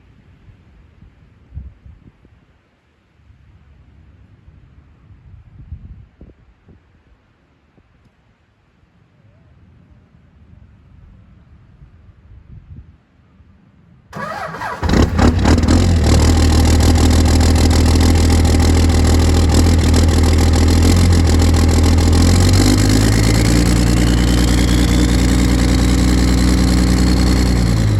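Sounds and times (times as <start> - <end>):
diesel engine running: 14.2 - 27.9
starter motor cranking: 14.2 - 27.9
rising whine: 15.2 - 27.9.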